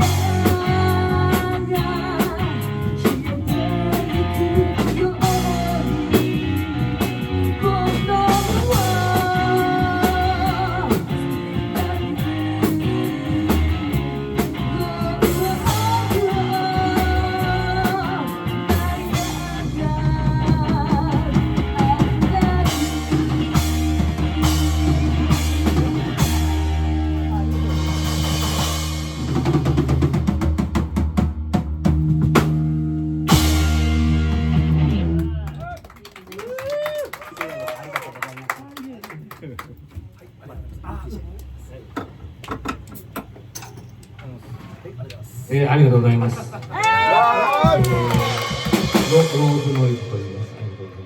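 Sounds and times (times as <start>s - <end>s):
lead singer: 0.0s - 28.9s
rock band playing live: 0.0s - 35.7s, 47.6s - 51.0s.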